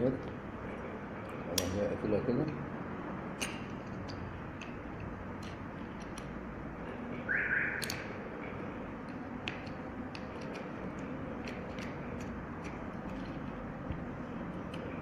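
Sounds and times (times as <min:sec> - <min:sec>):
small metal parts clicking: 0:03.4 - 0:07.2, 0:07.8 - 0:13.7.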